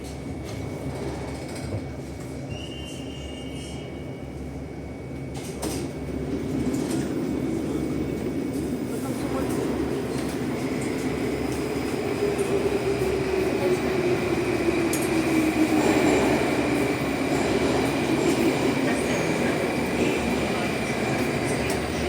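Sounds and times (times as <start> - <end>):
train wheels rumbling: 5.2 - 22.0.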